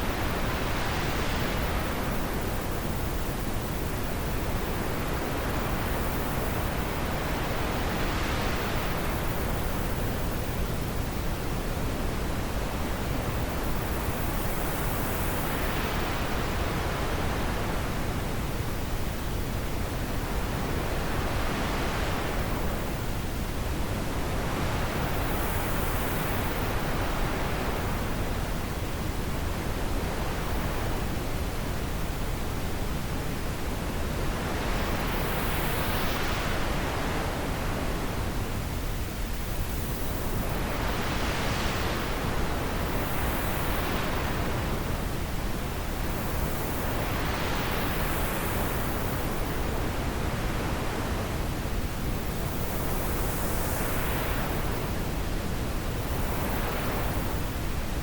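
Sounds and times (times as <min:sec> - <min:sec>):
wind blowing in gusts: 0:00.0 - 0:58.0.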